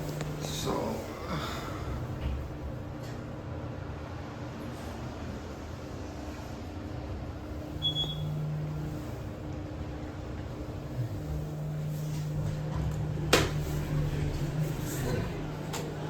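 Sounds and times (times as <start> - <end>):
elevator hum: 0.0 - 16.0
high beep: 7.8 - 8.3.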